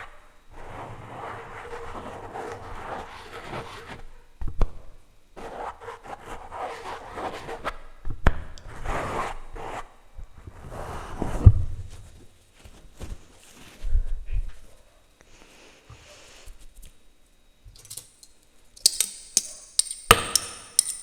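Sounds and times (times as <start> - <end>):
sharp clicks of utensils knocking: 17.8 - 21.0.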